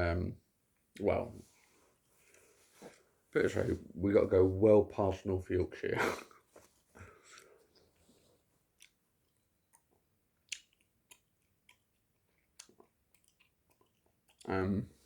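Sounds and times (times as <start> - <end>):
gum chewing mouth clicks: 8.8 - 14.5.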